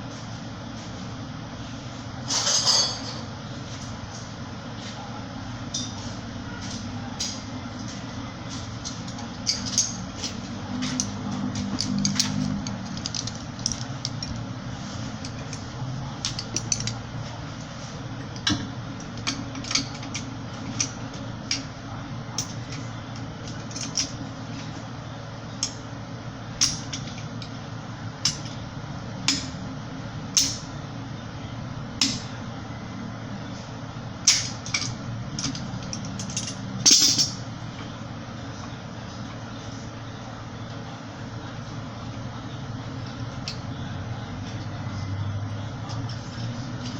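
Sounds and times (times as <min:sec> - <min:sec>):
steady background noise: 0:00.0 - 0:46.9
hand tools clinking on metal: 0:34.3 - 0:37.4.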